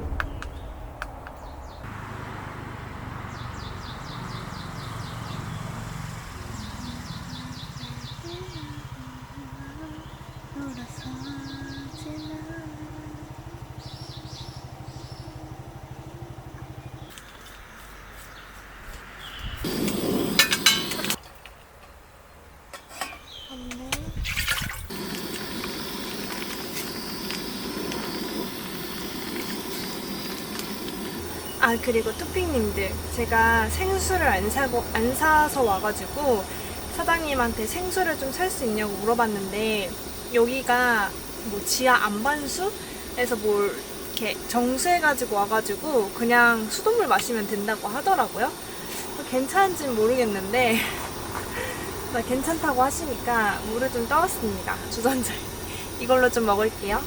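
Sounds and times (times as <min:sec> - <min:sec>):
steady rushing hum: 0:00.0 - 0:02.6, 0:19.5 - 0:21.2, 0:24.8 - 0:57.0
low wavering engine drone: 0:00.0 - 0:17.1, 0:24.8 - 0:57.0
even outdoor hiss: 0:00.0 - 0:57.0
songbird trills: 0:03.3 - 0:19.7, 0:22.8 - 0:24.2.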